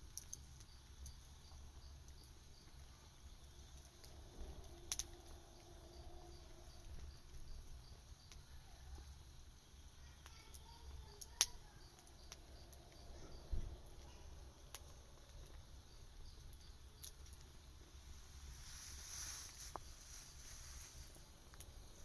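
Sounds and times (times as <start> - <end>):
campfire crackling: 0.0 - 22.0
faint low rumble: 1.5 - 22.0
sharp pops: 10.2 - 15.6.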